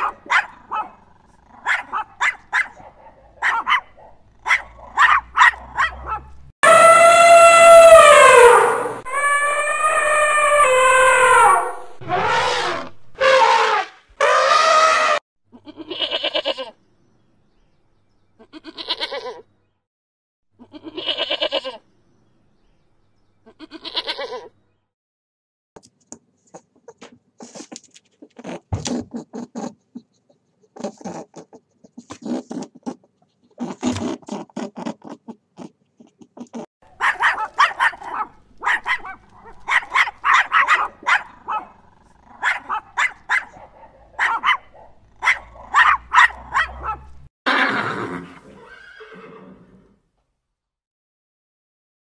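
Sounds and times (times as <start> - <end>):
puppy yelping: 0.0 - 12.9, 34.6 - 47.7
horse neighing: 46.8 - 50.0.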